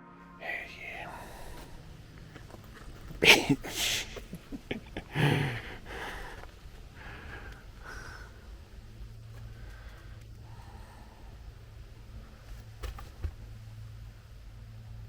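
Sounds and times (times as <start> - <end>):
person breathing sharply: 0.4 - 2.0, 3.2 - 4.4, 5.1 - 8.5.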